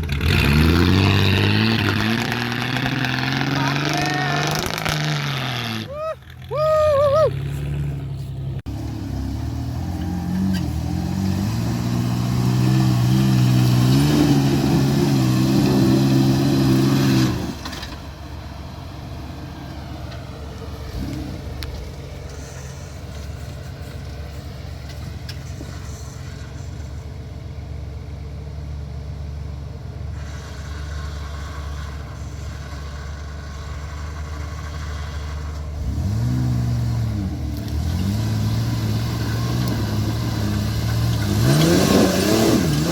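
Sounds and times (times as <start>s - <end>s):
car engine revving: 0.0s - 6.6s, 7.2s - 27.0s, 30.1s - 42.9s.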